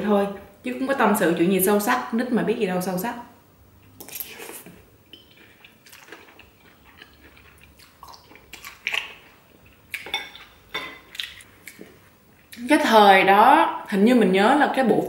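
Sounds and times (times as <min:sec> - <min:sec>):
noodles slurped and chewed: 0:04.0 - 0:09.4
metal spoon clinking on plate: 0:10.1 - 0:11.1.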